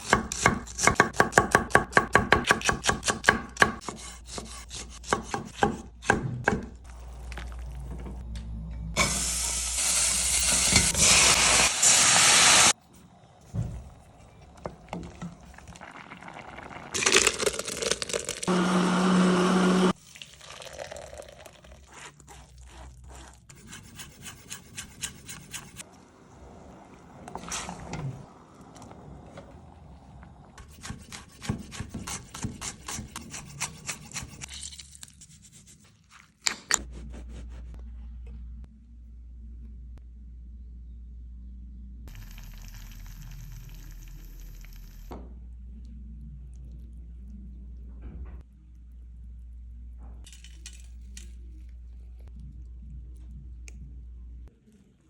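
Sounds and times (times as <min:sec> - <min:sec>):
knife chopping on cutting board: 0:00.0 - 0:06.7, 0:30.7 - 0:34.4
low steady hum: 0:36.9 - 0:55.0.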